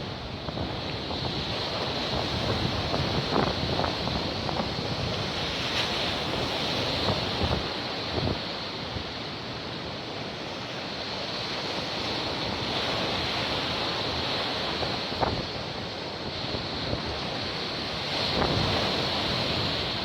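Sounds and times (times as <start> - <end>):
wind buffeting microphone: 0.0 - 8.4, 16.4 - 20.0
sea surf washing in: 0.0 - 20.0.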